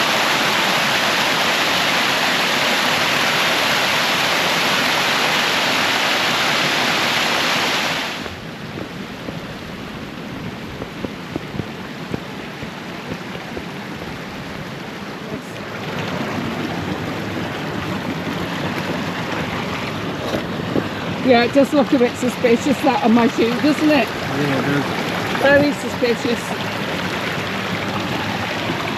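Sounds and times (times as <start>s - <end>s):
outdoor ambience: 0.0s - 28.9s
waterfall rushing: 0.0s - 28.9s
small knocks: 8.7s - 14.6s.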